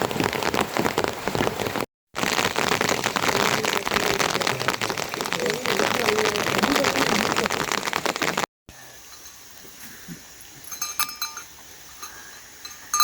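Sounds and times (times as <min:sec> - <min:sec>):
loud rain-like hiss: 0:00.0 - 0:13.0
livestock bells clinking: 0:09.0 - 0:09.5, 0:10.6 - 0:13.0.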